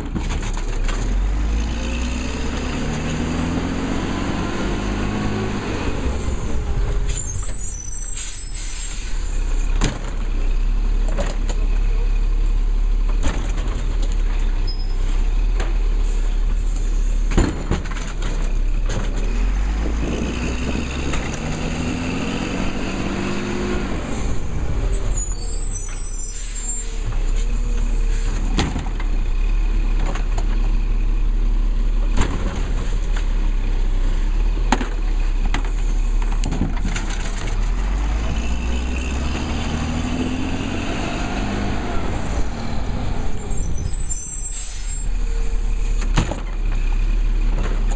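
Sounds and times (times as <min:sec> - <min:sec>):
garbage truck engine revving: 0:00.8 - 0:07.3, 0:16.9 - 0:30.2, 0:33.9 - 0:47.9.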